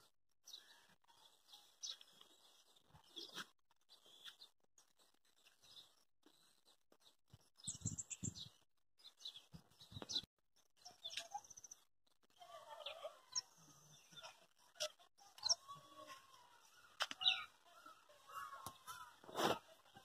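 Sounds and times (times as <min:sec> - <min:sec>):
birds chirping and calling: 0:00.0 - 0:20.0.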